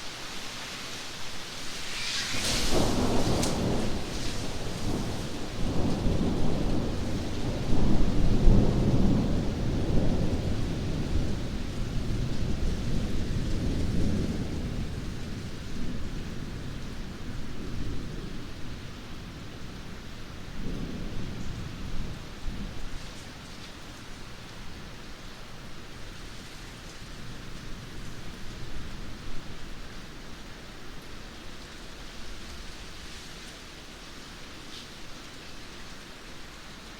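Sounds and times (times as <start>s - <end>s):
steady rain: 0.0s - 36.9s
rolling thunder: 1.9s - 18.8s.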